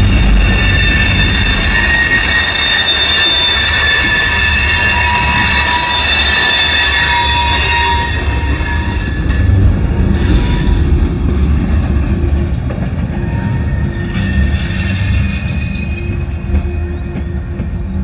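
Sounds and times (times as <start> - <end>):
freight train wheels rumbling: 0.0 - 18.0
train wheel squeal: 0.0 - 18.0.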